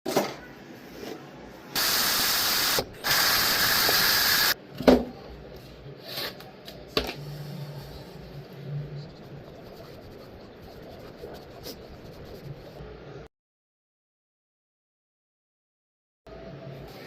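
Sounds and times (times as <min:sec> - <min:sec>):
long hissing sprays: 0:01.8 - 0:04.6.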